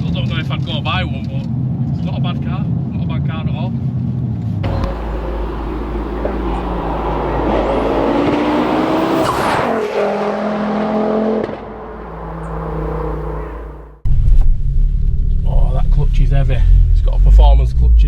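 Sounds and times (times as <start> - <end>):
turbocharged car engine accelerating: 4.6 - 18.0.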